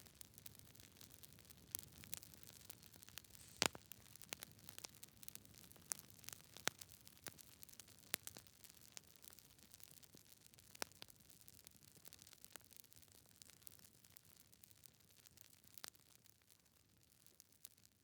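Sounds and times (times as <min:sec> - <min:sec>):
campfire crackling: 0:00.0 - 0:10.0
faint hiss: 0:03.2 - 0:03.8.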